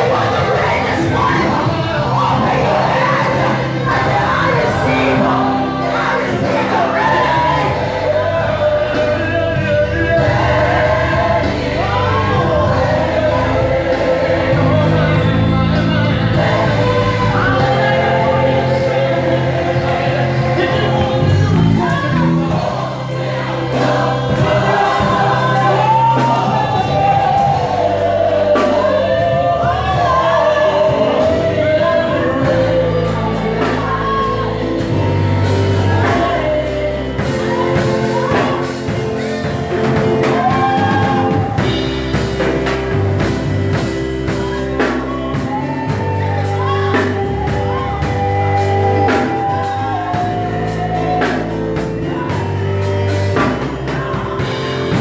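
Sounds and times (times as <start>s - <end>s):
band playing: 0.0s - 55.0s
bass notes: 0.0s - 55.0s
person singing gospel song: 0.0s - 55.0s
drum beat: 16.4s - 31.4s.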